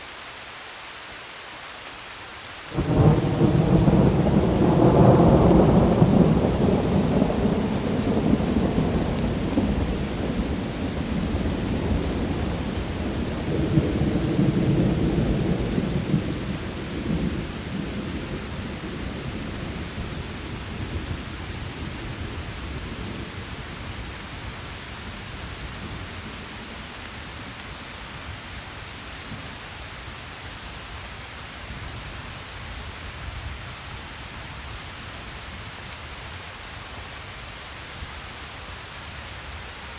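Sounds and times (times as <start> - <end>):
steady rainfall: 0.0 - 39.9
thunder rumbling: 2.8 - 27.4.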